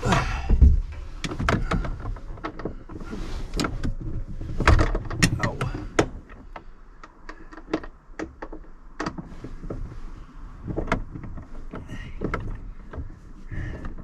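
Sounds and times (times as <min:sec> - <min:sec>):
hands and tools clicking and knocking: 0:00.0 - 0:09.9, 0:10.6 - 0:14.0.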